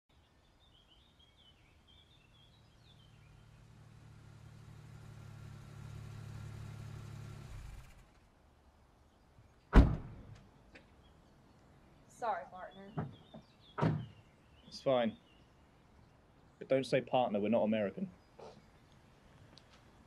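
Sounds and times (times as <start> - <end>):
bird chirps: 0.1 - 3.8, 10.6 - 16.8
car engine humming: 1.4 - 8.4.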